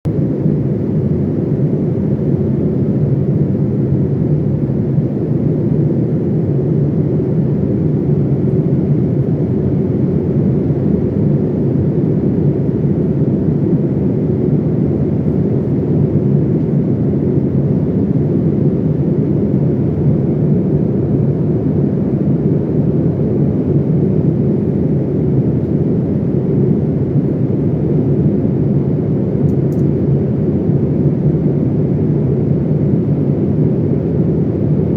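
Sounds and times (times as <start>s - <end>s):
airplane cabin drone: 0.1s - 34.9s.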